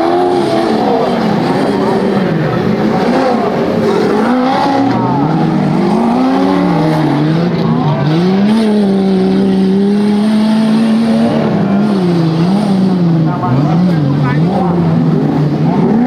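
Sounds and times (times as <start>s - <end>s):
off-road engine revving: 0.0s - 16.0s.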